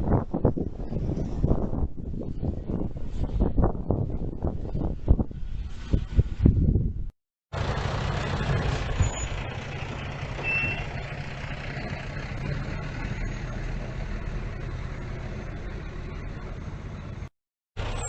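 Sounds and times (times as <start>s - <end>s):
dump truck diesel engine running: 7.5s - 18.0s
short high beep: 10.4s - 10.9s.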